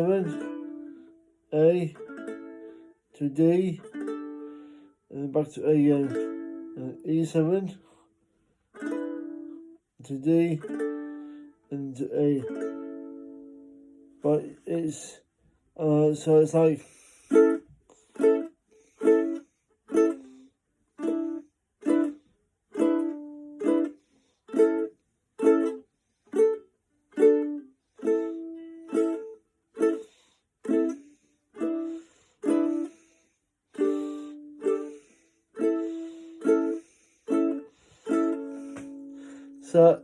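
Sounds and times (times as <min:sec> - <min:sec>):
ukulele strummed in short chords: 0:00.0 - 0:01.0, 0:05.9 - 0:07.5, 0:08.8 - 0:09.6, 0:10.6 - 0:11.2, 0:22.8 - 0:23.9, 0:30.7 - 0:31.0, 0:35.6 - 0:40.0.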